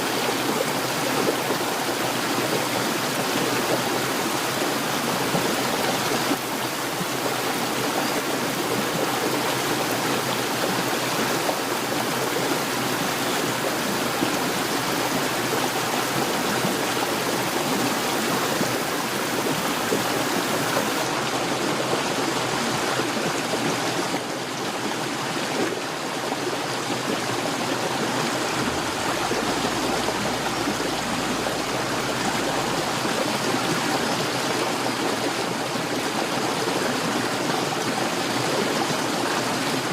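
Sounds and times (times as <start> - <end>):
heavy rain pouring: 27.1 - 35.9.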